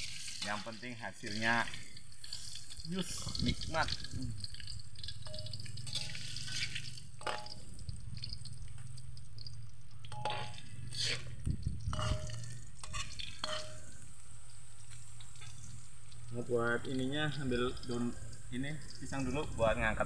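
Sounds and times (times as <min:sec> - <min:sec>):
metal spatula scraping a wok: 0:00.0 - 0:03.4, 0:05.2 - 0:07.6, 0:10.1 - 0:14.0
tofu frying in hot oil: 0:00.0 - 0:20.0.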